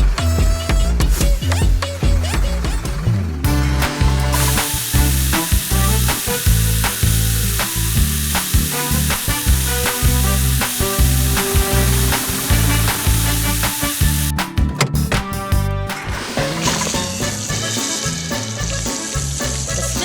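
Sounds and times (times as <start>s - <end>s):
background music with steady beat: 0.0s - 20.0s
sizzling hiss: 4.2s - 14.4s.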